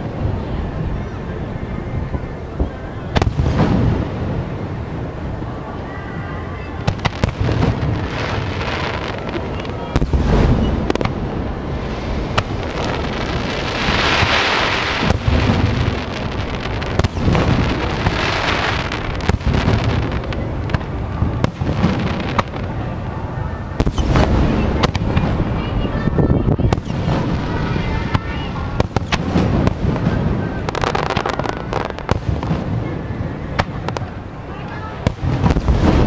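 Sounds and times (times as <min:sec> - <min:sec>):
crackling hiss: 0:01.0 - 0:36.0
firework shells booming: 0:03.1 - 0:04.8, 0:06.8 - 0:22.9, 0:23.8 - 0:34.2, 0:35.0 - 0:36.0
sharp firework cracks: 0:06.8 - 0:22.8, 0:23.8 - 0:25.8, 0:26.7 - 0:33.0, 0:34.8 - 0:36.0.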